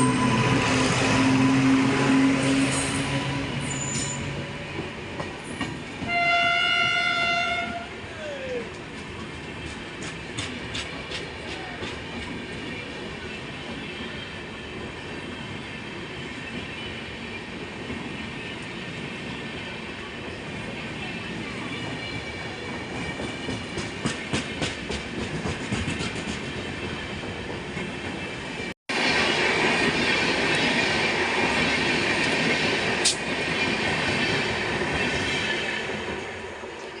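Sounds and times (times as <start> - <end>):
train rumbling past: 0.0 - 37.0.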